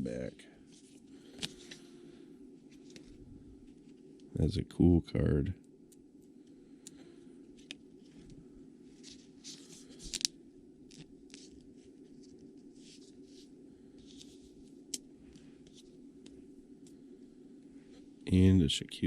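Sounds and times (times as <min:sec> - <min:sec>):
low steady hum: 0:00.0 - 0:19.0
cards rustling and scraping: 0:00.7 - 0:02.0, 0:02.6 - 0:04.1, 0:06.9 - 0:17.0.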